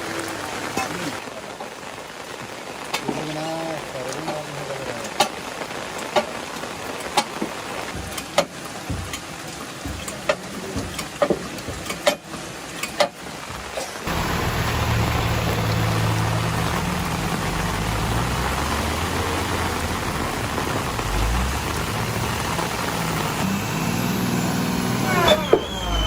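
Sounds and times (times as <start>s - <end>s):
rushing noise: 14.1s - 26.0s
truck engine running: 14.1s - 26.0s.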